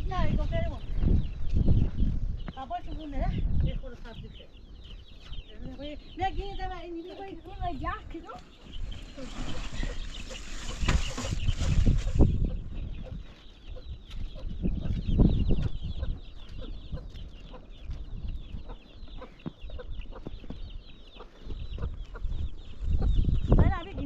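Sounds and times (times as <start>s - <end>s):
poultry clucking: 2.4s - 24.0s.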